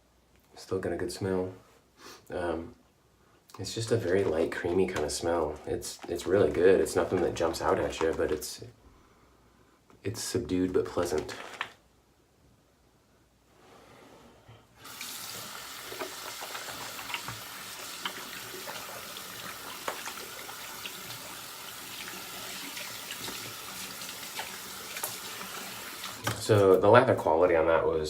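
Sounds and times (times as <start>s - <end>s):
clicks and splashes from rinsing: 14.8s - 26.6s
tap water running into sink: 14.8s - 26.6s.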